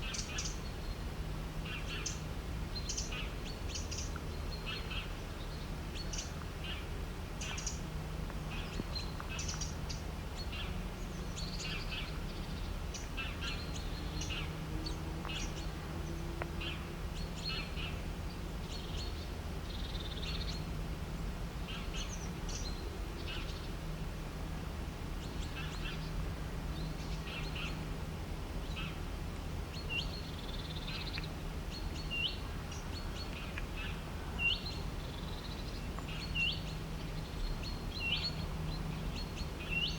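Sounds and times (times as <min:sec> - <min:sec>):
birds chirping: 0:02.8 - 0:20.7, 0:29.7 - 0:39.9.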